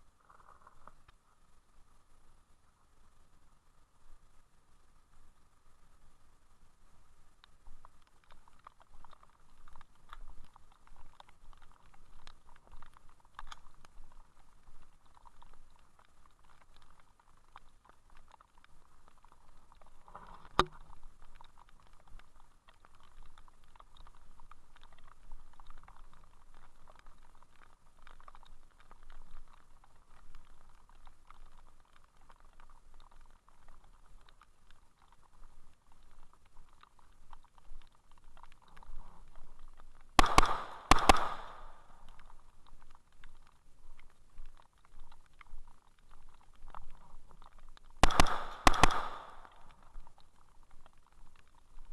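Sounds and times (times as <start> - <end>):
rain pattering on camera: 0.0 - 51.9
sharp knock: 48.0 - 49.1.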